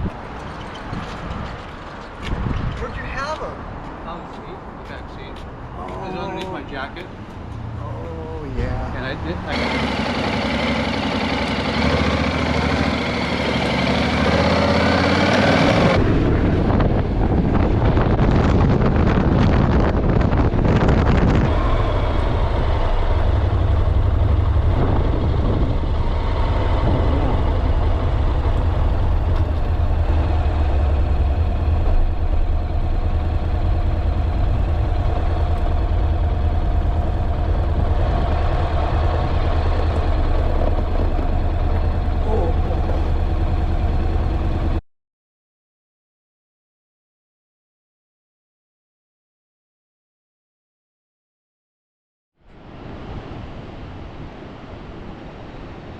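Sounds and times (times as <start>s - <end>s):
wind buffeting microphone: 0.0s - 4.1s, 15.3s - 44.8s
motorcycle engine accelerating: 9.5s - 44.8s.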